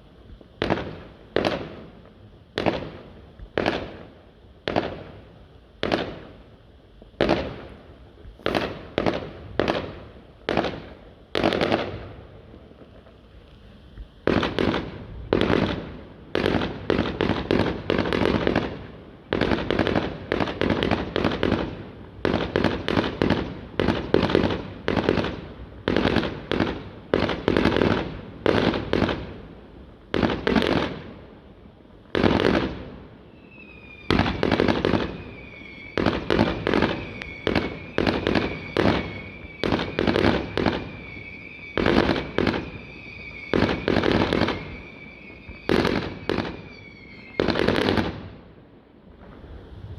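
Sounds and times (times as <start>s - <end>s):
firework bangs: 0.0s - 48.5s
steady high whistle: 33.2s - 47.7s.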